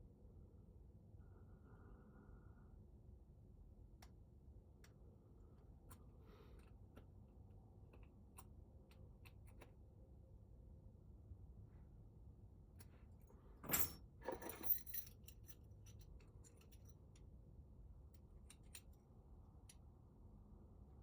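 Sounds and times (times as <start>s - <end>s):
keys jangling: 13.6s - 17.0s.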